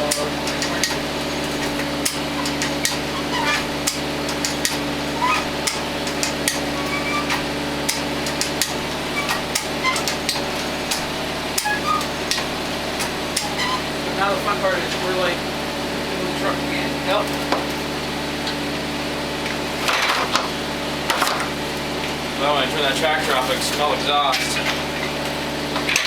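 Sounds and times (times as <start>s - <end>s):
sharp clicks and knocks: 0.0s - 13.8s
tractor engine idling: 0.0s - 26.0s.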